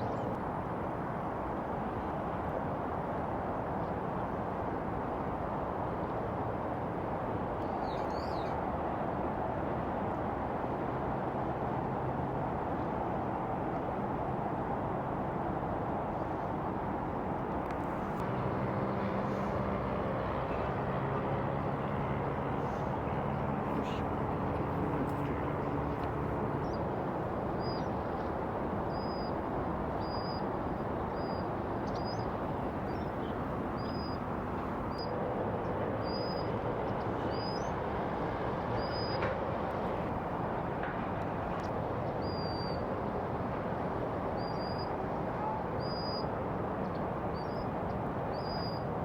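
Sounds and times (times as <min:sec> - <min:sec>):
engine-like drone: 0:17.6 - 0:27.5.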